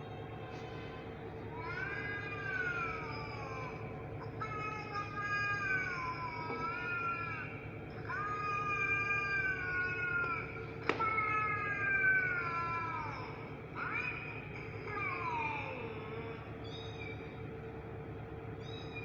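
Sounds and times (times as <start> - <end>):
steady hum: 0.0 - 19.0
kitten meowing: 16.7 - 17.3, 18.6 - 19.0.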